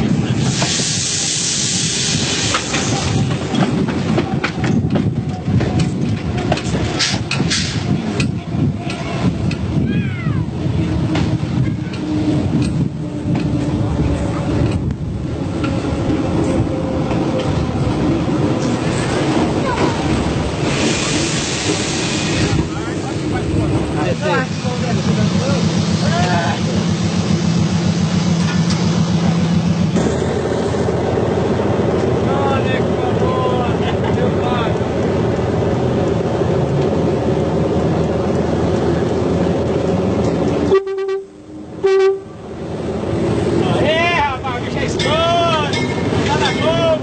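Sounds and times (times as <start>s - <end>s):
train rumbling: 0.0s - 47.0s
loud hiss: 0.3s - 3.2s, 20.6s - 22.7s
train horn blast: 40.7s - 42.4s.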